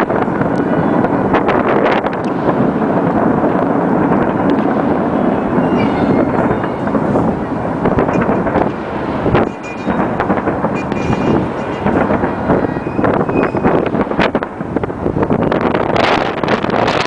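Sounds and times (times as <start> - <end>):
fireworks crackling and banging: 0.0 - 17.0.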